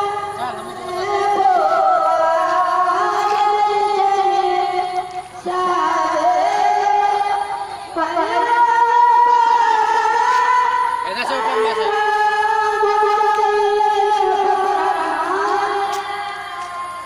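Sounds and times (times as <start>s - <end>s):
music: 0.0s - 17.0s
woman singing long held notes: 0.0s - 17.0s.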